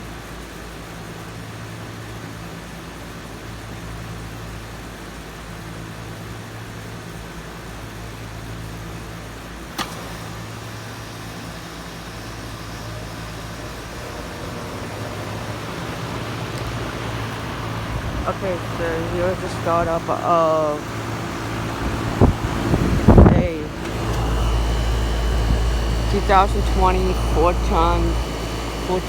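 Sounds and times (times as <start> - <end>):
compressor humming: 5.4 - 29.0
fan rushing: 7.7 - 29.0.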